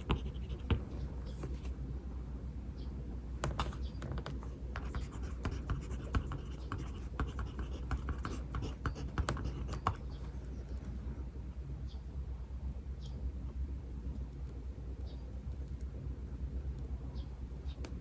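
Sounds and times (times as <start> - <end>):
pen scratching on paper: 0.0 - 1.8, 3.4 - 10.5
steady low hum: 0.0 - 18.0.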